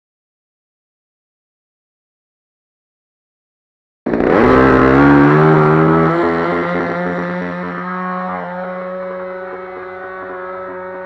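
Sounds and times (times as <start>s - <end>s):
model airplane engine running: 4.1s - 11.0s.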